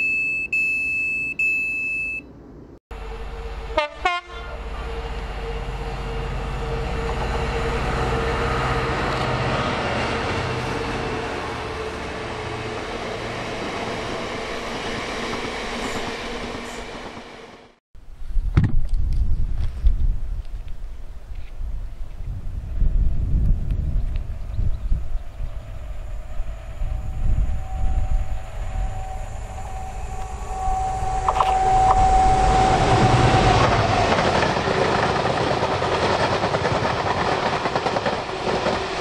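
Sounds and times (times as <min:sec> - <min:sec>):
train passing at speed: 0:02.9 - 0:17.8, 0:22.6 - 0:39.0
train horn blast: 0:03.0 - 0:13.3, 0:25.4 - 0:34.1.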